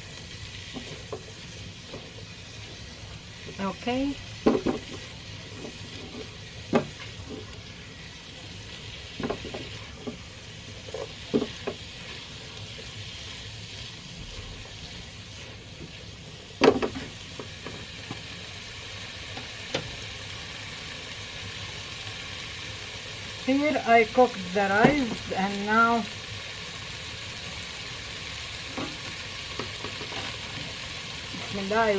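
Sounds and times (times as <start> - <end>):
food sizzling in a pan: 0.0 - 31.9
utensil knocking and scraping pan: 4.4 - 7.5.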